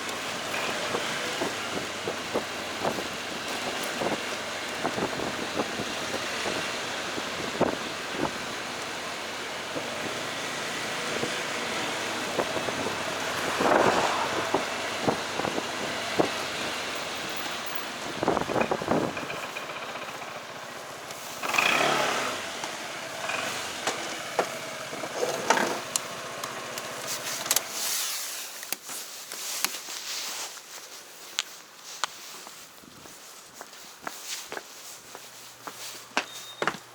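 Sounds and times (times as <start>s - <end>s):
motorcycle engine rumble: 0.0s - 27.8s
vehicles passing: 0.0s - 27.8s
road and wind noise: 0.0s - 36.9s.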